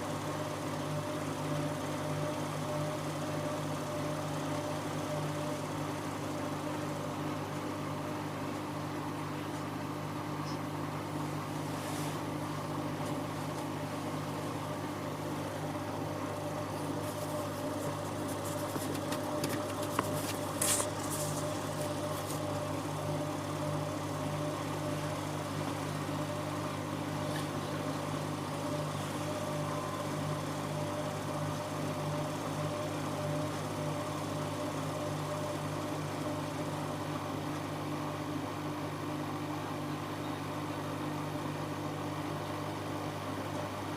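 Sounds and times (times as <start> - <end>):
washing machine motor hum: 0.0 - 43.9.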